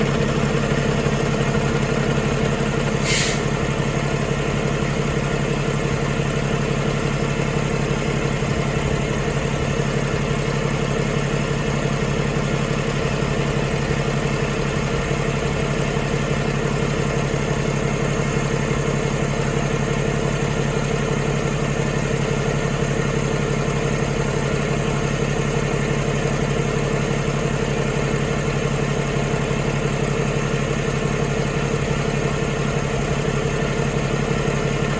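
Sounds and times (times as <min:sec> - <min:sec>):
diesel engine idling: 0:00.0 - 0:34.9
brief hiss: 0:03.0 - 0:03.6.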